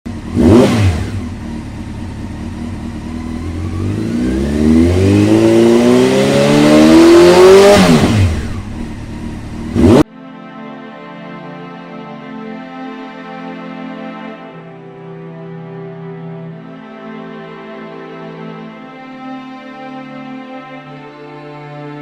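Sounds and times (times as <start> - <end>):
vehicle engine revving past: 3.1 - 10.1.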